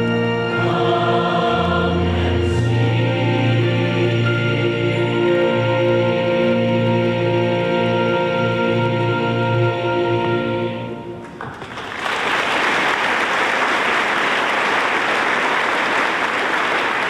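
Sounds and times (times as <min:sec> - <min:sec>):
audience applause: 0:11.2 - 0:17.0.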